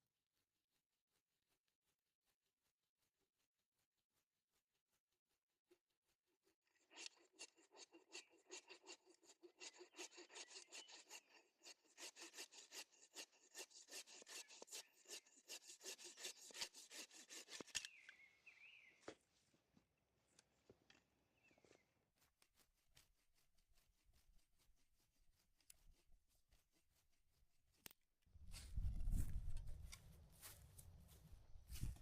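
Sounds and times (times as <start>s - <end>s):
hand-sawing wood: 6.6s - 18.0s.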